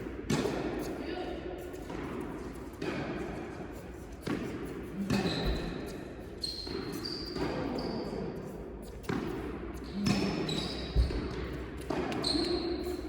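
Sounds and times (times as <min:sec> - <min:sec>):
tennis ball struck by rackets: 0:04.2 - 0:05.3, 0:09.0 - 0:10.4
ball bouncing on court: 0:04.2 - 0:08.2, 0:08.9 - 0:13.0.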